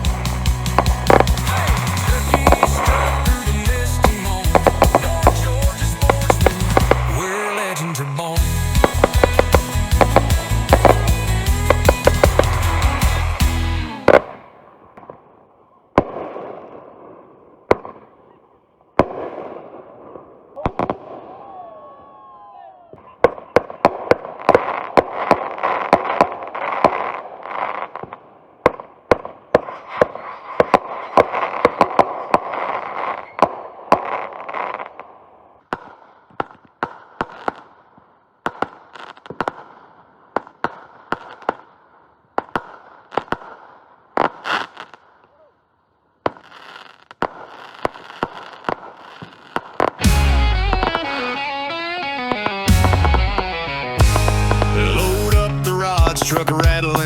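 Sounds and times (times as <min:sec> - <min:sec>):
music: 0:00.0 - 0:14.2, 0:50.0 - 0:57.0
fireworks bangs and crackling: 0:00.0 - 0:45.5, 0:46.2 - 0:57.0.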